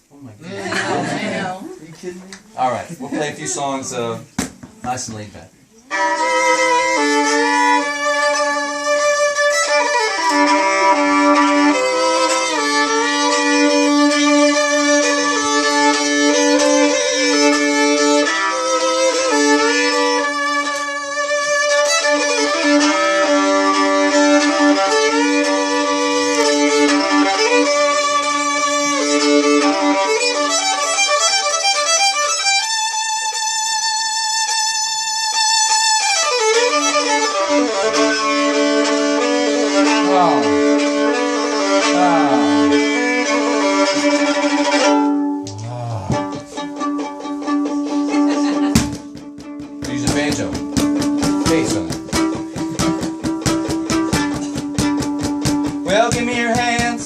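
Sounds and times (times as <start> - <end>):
solo fiddle melody: 2.5 - 45.4, 46.2 - 57.0
fiddle drone string: 5.9 - 57.0.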